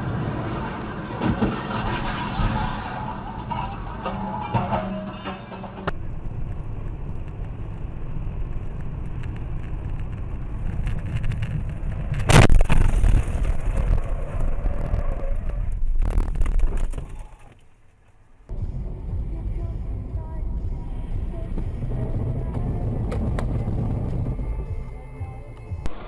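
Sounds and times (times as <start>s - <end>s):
road and engine noise: 0.0s - 26.0s.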